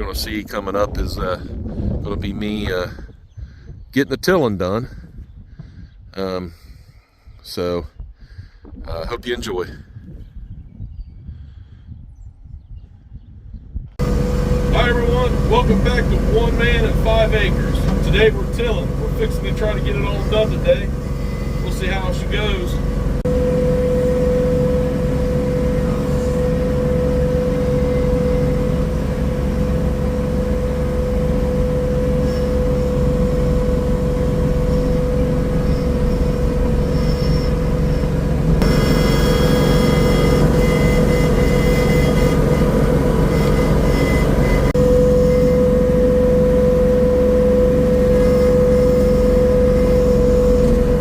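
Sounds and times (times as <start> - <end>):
garden tiller engine running: 14.0 - 51.0.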